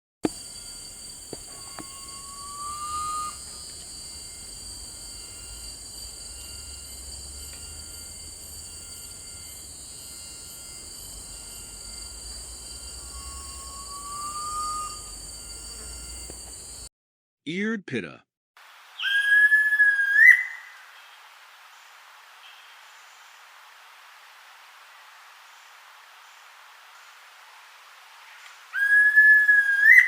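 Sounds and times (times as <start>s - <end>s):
insects hissing: 0.2s - 16.9s
bird whistle call: 1.3s - 3.6s, 13.1s - 15.1s, 19.0s - 20.7s, 28.8s - 30.0s.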